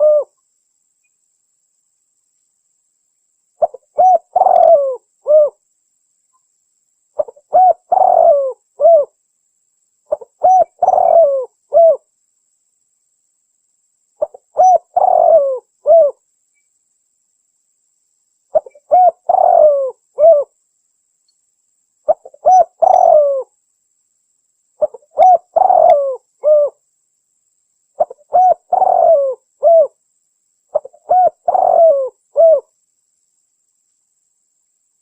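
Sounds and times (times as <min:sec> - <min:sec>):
dove cooing: 0:00.0 - 0:00.3, 0:03.6 - 0:05.6, 0:07.2 - 0:09.1, 0:10.1 - 0:12.0, 0:14.2 - 0:16.2, 0:18.5 - 0:20.5, 0:22.1 - 0:23.5, 0:24.8 - 0:26.8, 0:28.0 - 0:30.0, 0:30.7 - 0:32.7.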